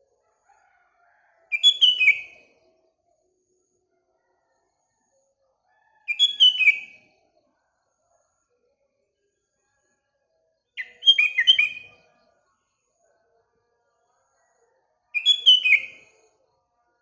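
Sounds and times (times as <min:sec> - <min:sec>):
bulbul singing: 0:10.8 - 0:11.9, 0:15.2 - 0:16.0.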